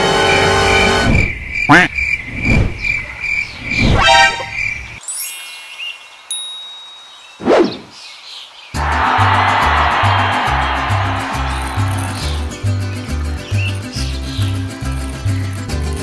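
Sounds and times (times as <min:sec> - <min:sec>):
pulsing high beep: 0:04.0 - 0:04.6
bell-like ding: 0:06.3 - 0:07.2.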